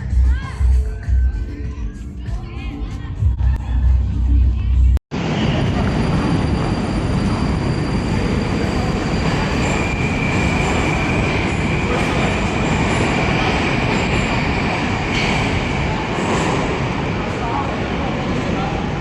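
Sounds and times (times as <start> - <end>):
train rumbling: 5.1 - 19.0
high squeal: 5.2 - 16.6.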